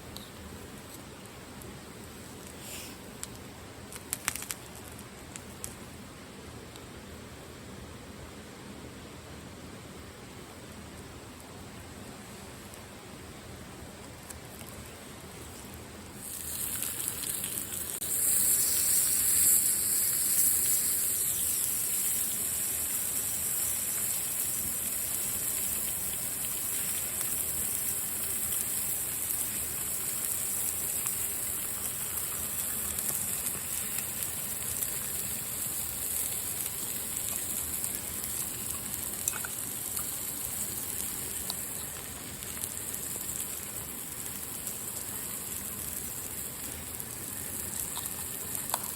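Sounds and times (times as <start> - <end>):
steady rain falling: 21.6 - 48.9.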